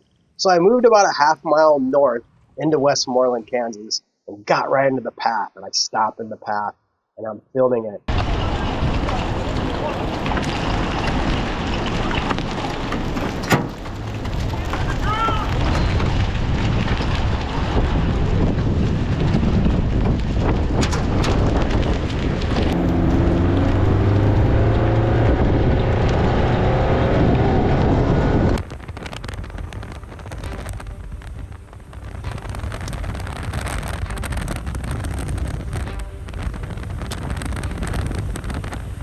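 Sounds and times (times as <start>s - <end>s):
tornado wind roar: 8.1s - 39.0s
wind buffeting microphone: 8.1s - 39.0s.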